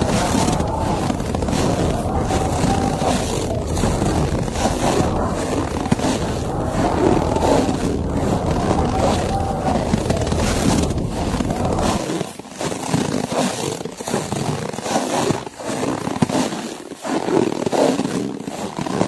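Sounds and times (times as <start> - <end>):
blizzard wind gusting: 0.0 - 12.0.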